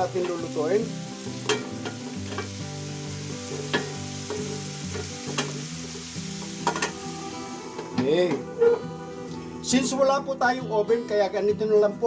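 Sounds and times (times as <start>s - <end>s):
food sizzling in a frying pan: 0.0s - 8.4s.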